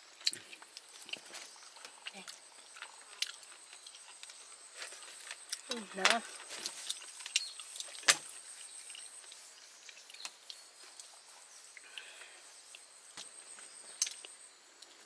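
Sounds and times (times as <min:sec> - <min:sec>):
light hiss: 0:03.9 - 0:15.0.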